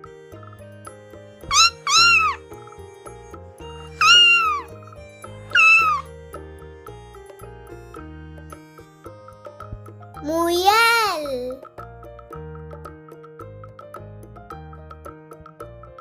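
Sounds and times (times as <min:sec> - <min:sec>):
light background music: 0:00.0 - 0:16.0
cat meowing: 0:01.5 - 0:02.4, 0:04.0 - 0:04.7, 0:05.5 - 0:06.1.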